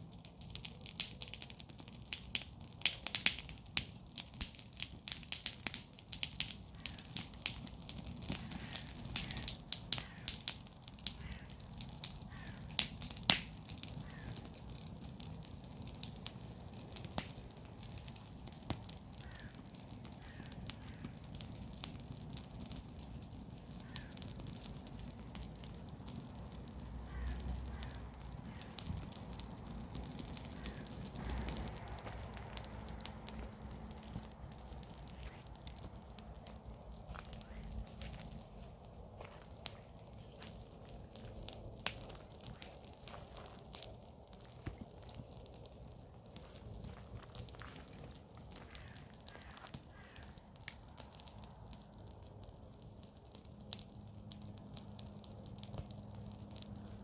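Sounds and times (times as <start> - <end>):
garden fire crackling and popping: 0.0 - 57.0
steady low rumble: 26.7 - 45.0.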